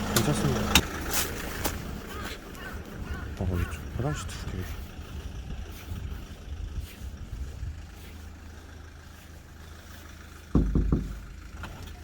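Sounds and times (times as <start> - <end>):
vehicle engine rumble: 0.0 - 12.0
quick low thumps: 10.5 - 11.7.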